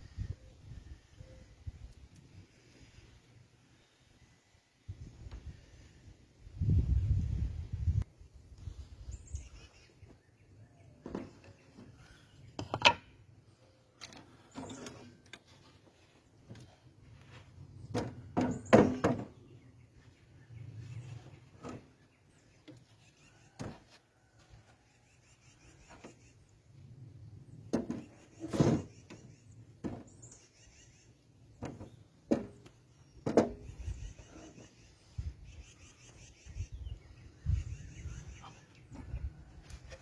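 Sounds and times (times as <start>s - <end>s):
wood and tools knocking: 11.0s - 12.0s, 12.6s - 13.2s, 17.9s - 19.4s, 27.7s - 29.2s, 29.8s - 30.1s, 31.6s - 34.4s.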